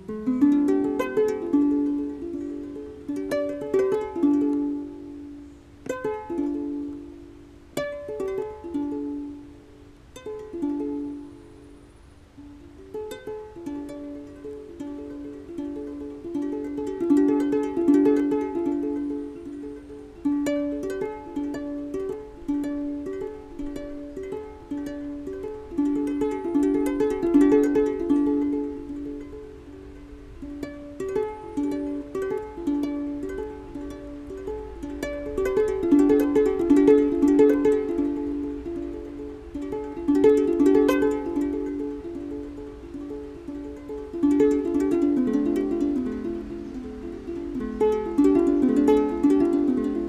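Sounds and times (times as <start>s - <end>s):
plucked string instrument melody: 0.0s - 50.0s.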